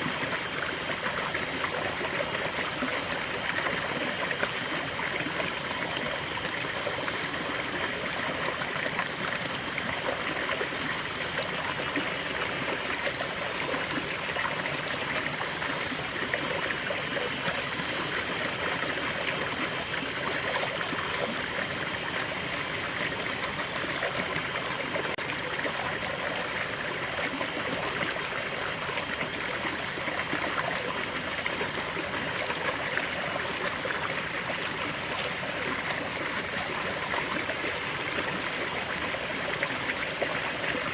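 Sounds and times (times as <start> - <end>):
stream and small waterfall flowing: 0.0 - 40.9.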